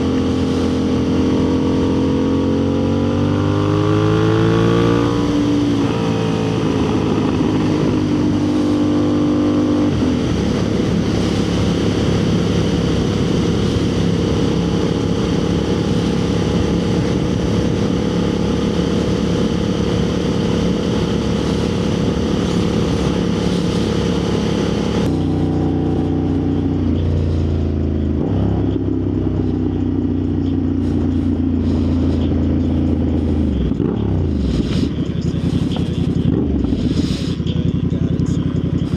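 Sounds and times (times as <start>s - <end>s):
motorcycle engine: 0.0s - 38.9s.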